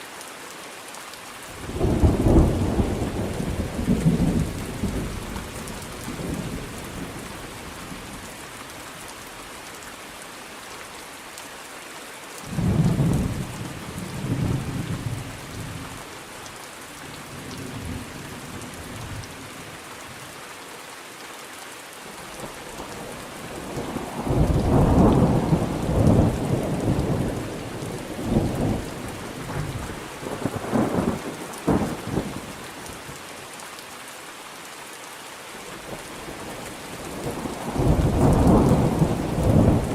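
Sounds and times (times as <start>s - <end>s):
steady rain: 0.0s - 39.9s
rolling thunder: 23.7s - 32.4s, 37.0s - 39.9s.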